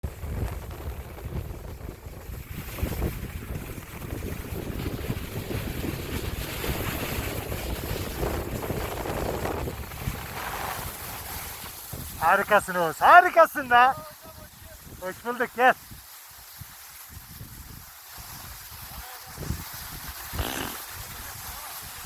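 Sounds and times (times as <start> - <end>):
wind buffeting microphone: 0.0 - 12.6, 13.9 - 15.1, 15.8 - 22.0
rushing hiss: 10.0 - 22.0.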